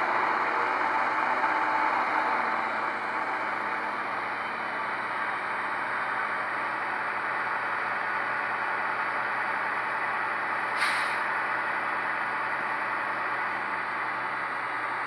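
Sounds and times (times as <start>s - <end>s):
brief hiss: 10.8s - 11.3s.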